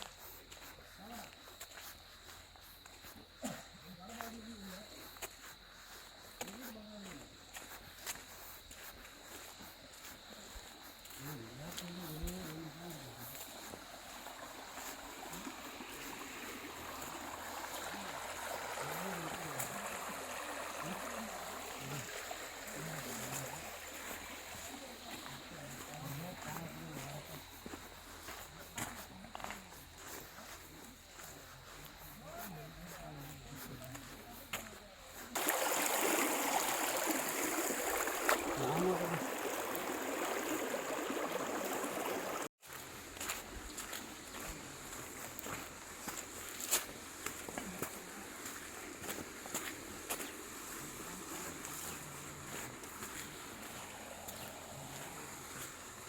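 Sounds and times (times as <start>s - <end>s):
stream water rushing: 11.7s - 27.1s, 35.3s - 56.0s
faint low voices: 16.9s - 35.4s, 36.5s - 41.6s.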